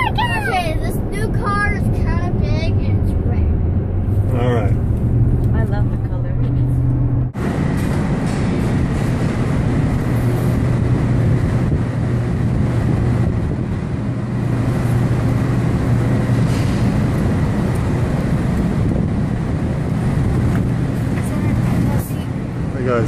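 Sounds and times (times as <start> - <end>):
car engine hum: 0.0 - 23.0
road noise inside car: 0.0 - 23.0.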